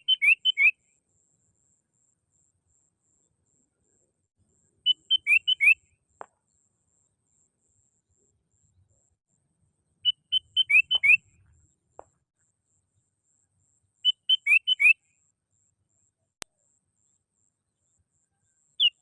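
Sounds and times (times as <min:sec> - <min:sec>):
bird calling with rising whistles: 0:00.0 - 0:00.8, 0:04.8 - 0:05.9, 0:10.0 - 0:11.4, 0:14.0 - 0:15.0.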